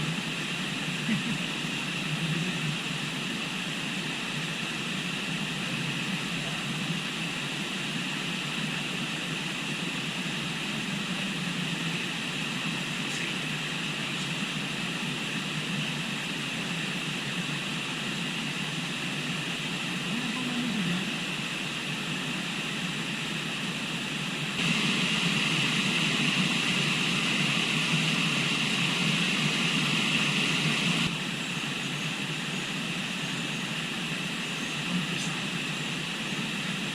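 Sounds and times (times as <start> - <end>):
river flowing: 24.6 - 31.5.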